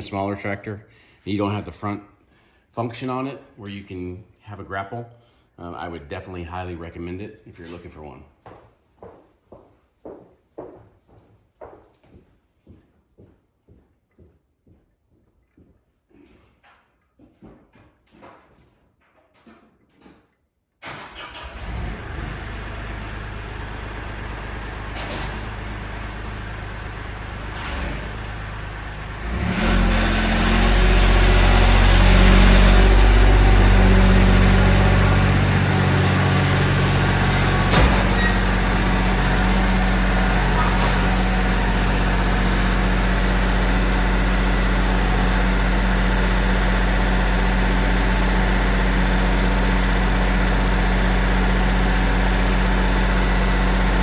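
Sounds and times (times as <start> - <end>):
tractor engine running: 20.8 - 54.0.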